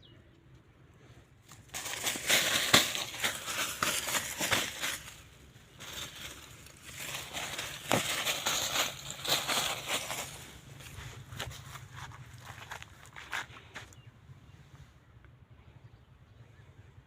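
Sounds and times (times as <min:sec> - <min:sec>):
crackling and rustling: 0:01.4 - 0:13.8.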